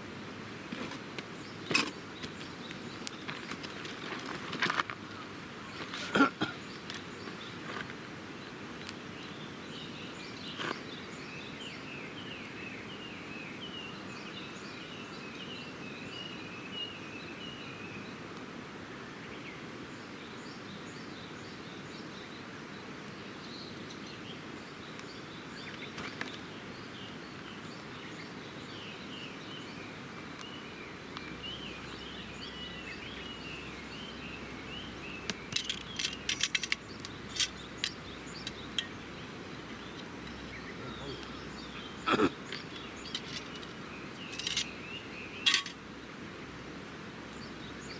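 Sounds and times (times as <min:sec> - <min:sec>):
campfire crackling and popping: 0:00.6 - 0:09.4, 0:30.2 - 0:46.6
birds chirping: 0:24.9 - 0:46.3.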